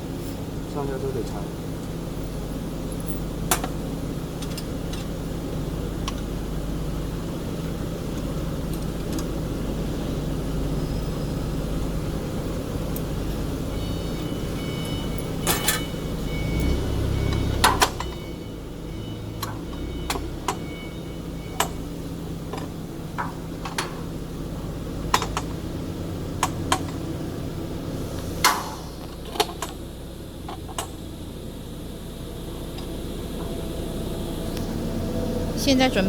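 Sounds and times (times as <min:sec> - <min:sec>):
steady low hum: 0:00.0 - 0:36.0
metal tools clanking: 0:14.2 - 0:18.2.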